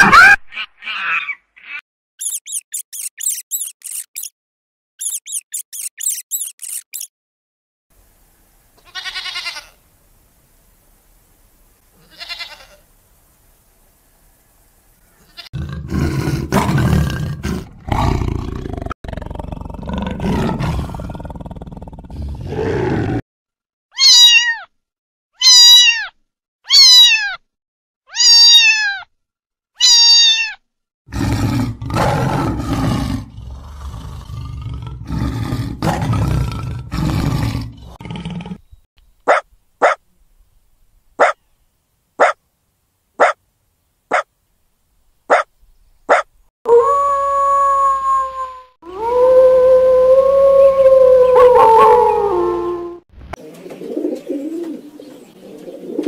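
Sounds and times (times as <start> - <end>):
big cat roaring: 15.6 - 23.2, 31.1 - 38.6
low rough growling: 31.1 - 38.7
long steady howl: 46.7 - 53.0.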